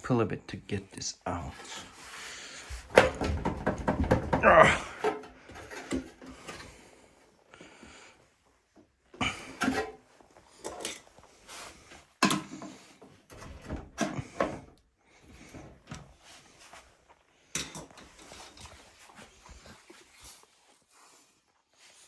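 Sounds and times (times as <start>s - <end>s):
plastic parts knocking and scraping: 2.7s - 6.8s, 12.2s - 14.8s.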